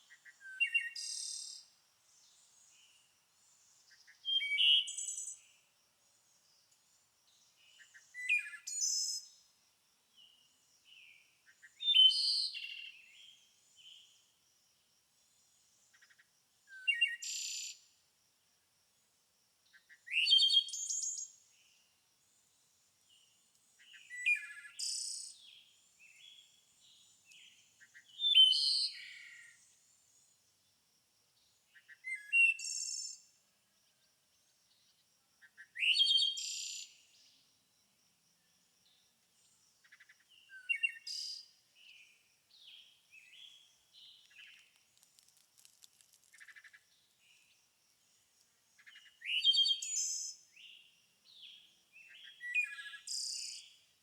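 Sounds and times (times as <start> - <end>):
songbird singing: 0.0 - 14.4, 15.2 - 18.0, 19.6 - 54.0.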